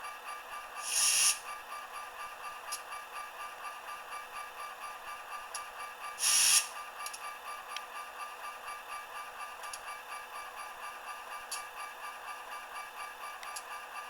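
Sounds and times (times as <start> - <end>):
air hiss bursts: 0.8 - 1.4, 6.2 - 6.7.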